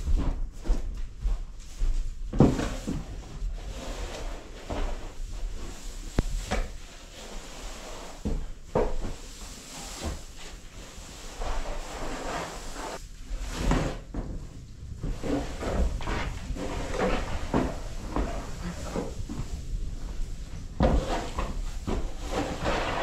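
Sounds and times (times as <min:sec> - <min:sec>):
hay thudding and knocking: 0:13.3 - 0:23.0
hay rustling: 0:15.0 - 0:23.0.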